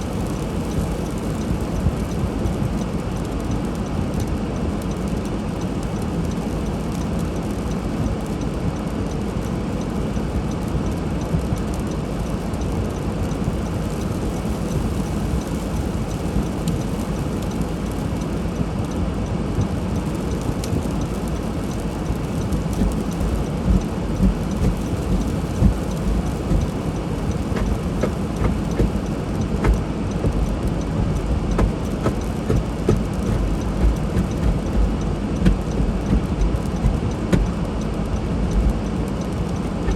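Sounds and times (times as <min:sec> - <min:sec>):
car driving on snowy road: 0:09.4 - 0:39.9
bumps and knocks: 0:22.8 - 0:37.6.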